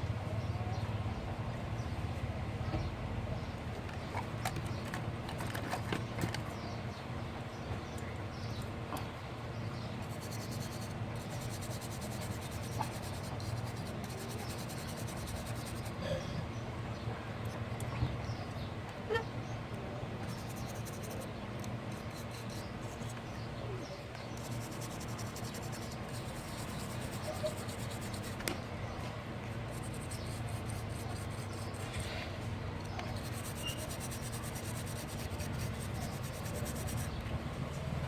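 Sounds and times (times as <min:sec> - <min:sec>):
low electrical hum: 0:00.0 - 0:38.0
light scratching handling noises: 0:03.8 - 0:06.8, 0:10.0 - 0:16.0, 0:20.2 - 0:38.0.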